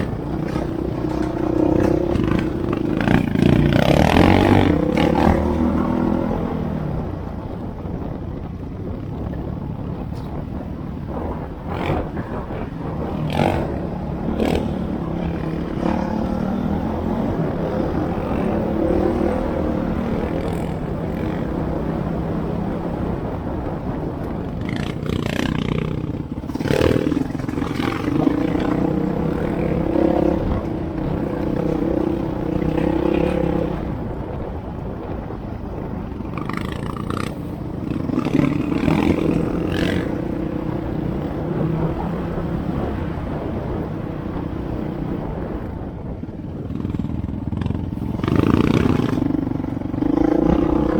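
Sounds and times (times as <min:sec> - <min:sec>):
knocks and clatter: 0:00.0 - 0:06.7
off-road vehicle engine running: 0:00.0 - 0:50.9.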